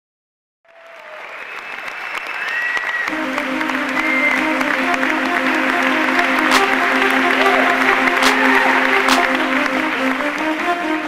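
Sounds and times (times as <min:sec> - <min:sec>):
audience applause: 0:00.6 - 0:11.0
music with held notes: 0:03.1 - 0:11.0.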